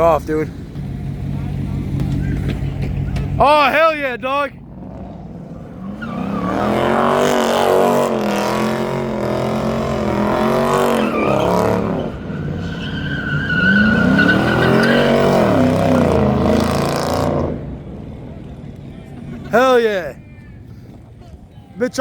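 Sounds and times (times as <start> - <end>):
car engine revving: 4.6 - 18.8
high tyre squeal: 4.7 - 18.2
tyres spinning: 5.4 - 19.6.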